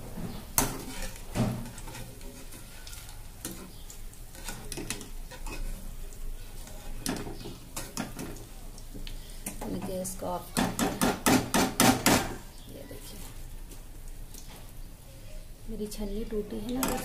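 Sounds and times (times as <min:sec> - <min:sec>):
garlic sizzling in hot oil: 0:00.0 - 0:17.0.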